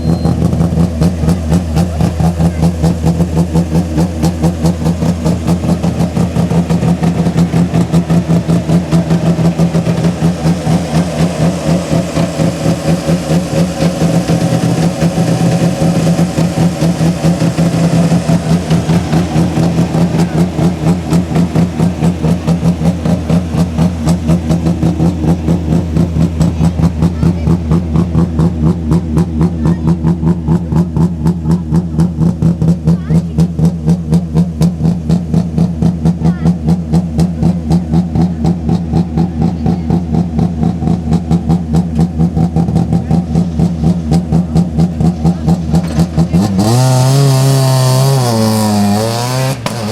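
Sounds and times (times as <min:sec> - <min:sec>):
rally car engine idling: 0:00.0 - 0:49.9.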